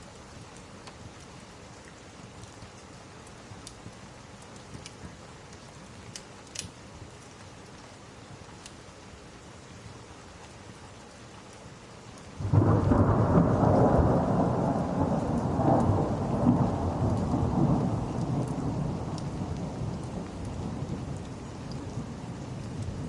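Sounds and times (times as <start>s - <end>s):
steady rain: 0.0s - 23.0s
thunder peal and rumble: 12.4s - 23.0s.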